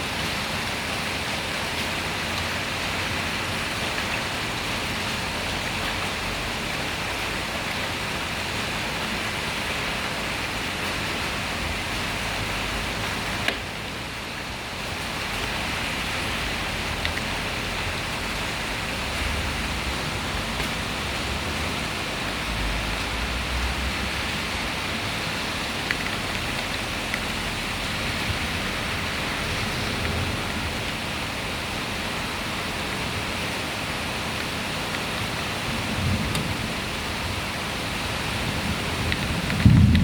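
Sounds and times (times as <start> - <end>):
heavy rain pouring: 0.0 - 40.0
low rumbles of thunder: 35.8 - 37.4, 38.3 - 40.0.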